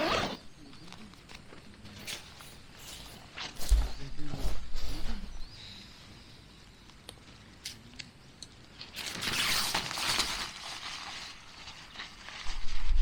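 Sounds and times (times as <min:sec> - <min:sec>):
crinkling rustling: 0:08.8 - 0:13.0.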